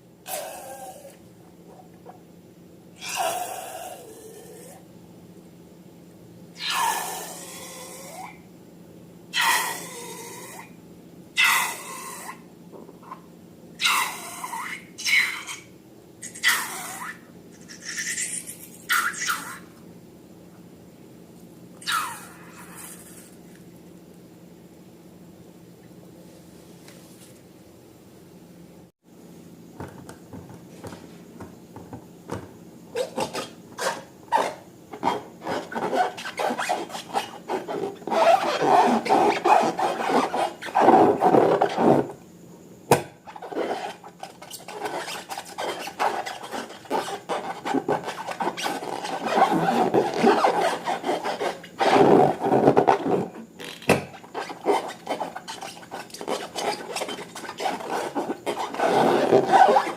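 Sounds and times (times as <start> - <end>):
slime rubbing and scraping: 33.1 - 42.1, 43.3 - 53.5, 54.1 - 59.9.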